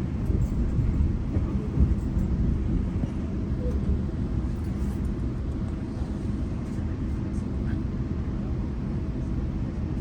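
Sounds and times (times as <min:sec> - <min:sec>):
train rumbling on track: 0:00.0 - 0:10.0.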